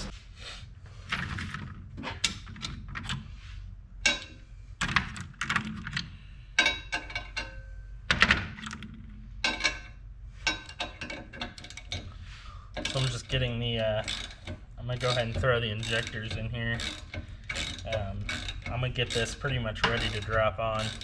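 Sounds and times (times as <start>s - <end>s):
metal parts knocking and clinking: 4.0s - 12.1s, 12.7s - 21.0s.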